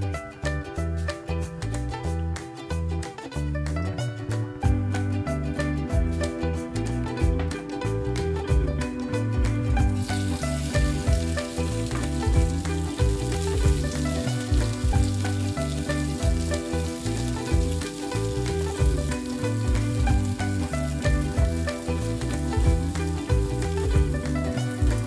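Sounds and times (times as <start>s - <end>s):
background music with bass: 0.0s - 25.0s
onions sizzling in a wok: 9.7s - 25.0s.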